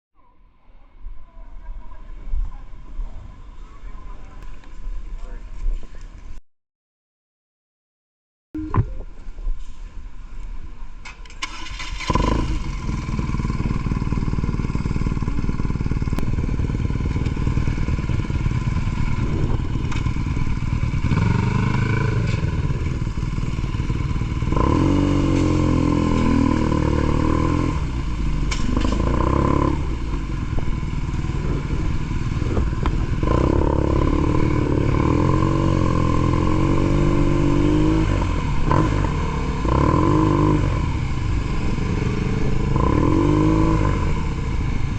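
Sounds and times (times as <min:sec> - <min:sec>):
motorcycle engine accelerating: 0:11.4 - 0:44.9.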